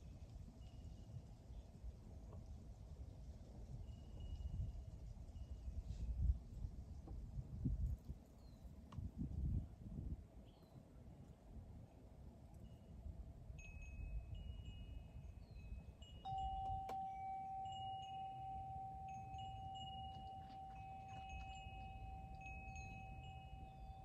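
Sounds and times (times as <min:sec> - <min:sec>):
wind chimes ringing: 0:13.6 - 0:24.0.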